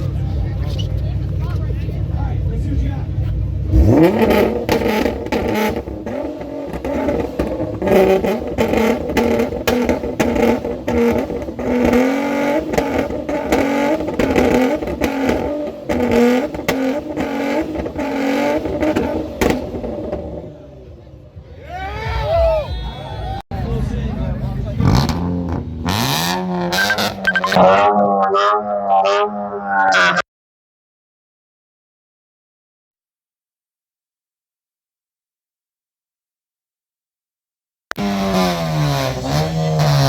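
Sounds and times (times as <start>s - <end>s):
car engine revving: 0.0s - 21.0s, 24.2s - 30.2s, 37.9s - 40.0s
exhaust pops and crackles: 4.2s - 20.2s.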